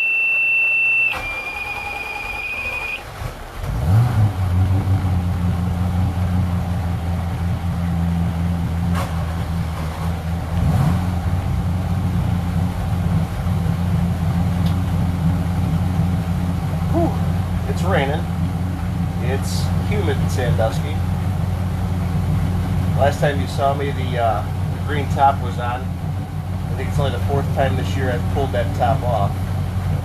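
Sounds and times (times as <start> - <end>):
high tone: 0.0 - 3.0
boat engine starting and idling: 0.0 - 30.0.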